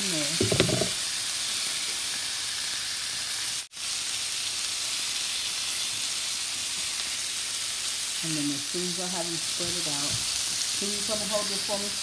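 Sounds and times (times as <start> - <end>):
shrimp sizzling in oil: 0.0 - 12.0.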